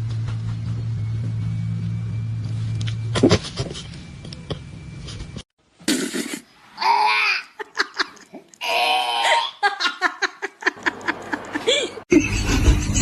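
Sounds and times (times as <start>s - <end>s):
person laughing: 7.2s - 8.4s, 9.2s - 13.0s.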